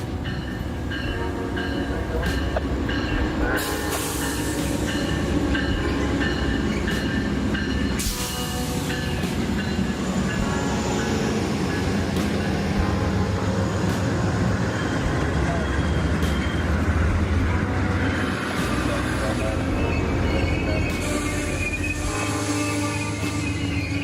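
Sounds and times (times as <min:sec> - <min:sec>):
train rumbling on tracks: 0:00.0 - 0:24.0.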